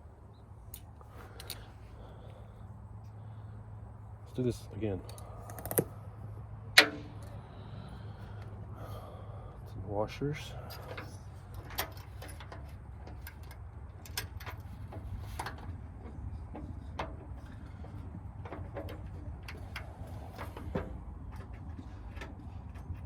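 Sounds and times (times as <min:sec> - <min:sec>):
metal washers clicking: 0:05.1 - 0:05.9.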